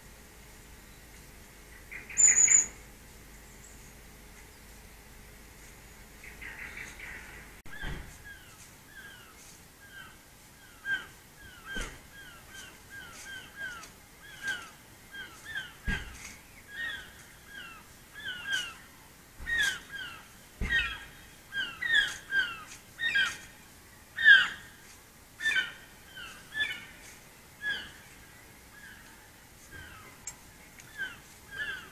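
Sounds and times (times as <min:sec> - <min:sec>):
bird calling down-curving notes: 0:00.8 - 0:04.8, 0:25.4 - 0:31.9.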